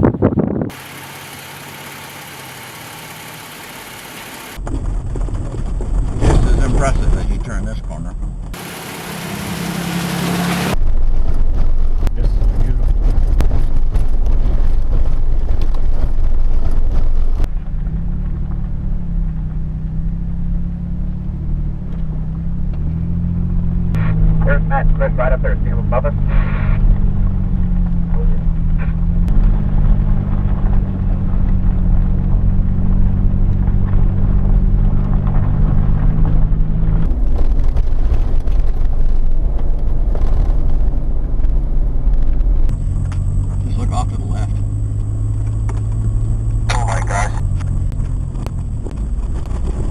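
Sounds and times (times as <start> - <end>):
off-road vehicle driving on dirt: 0.0 - 49.9
low engine drone: 0.7 - 5.2, 8.4 - 11.0, 21.8 - 38.4, 40.0 - 49.9
gravel crackling: 0.7 - 49.9.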